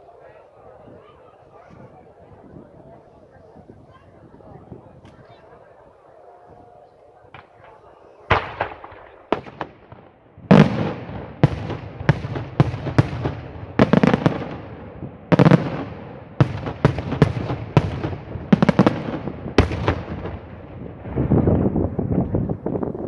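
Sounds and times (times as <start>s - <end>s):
fireworks bursting with sharp bangs: 7.3s - 22.9s.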